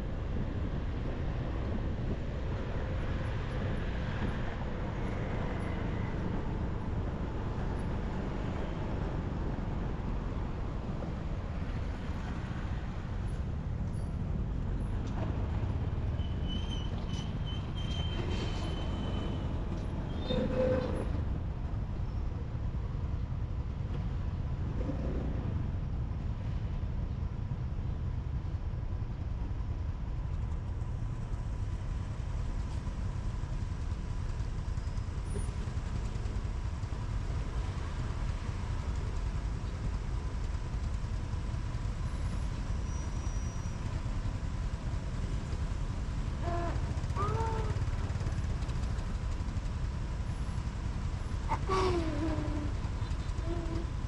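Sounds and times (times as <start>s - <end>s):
motorbike engine and road rumble: 29.0s - 54.0s.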